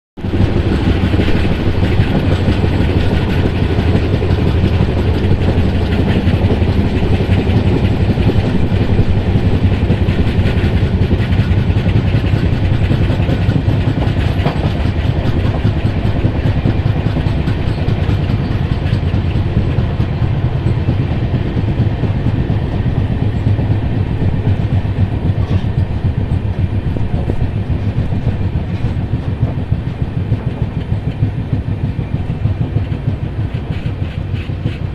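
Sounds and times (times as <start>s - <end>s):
train rumbling on rails: 0.2s - 34.9s.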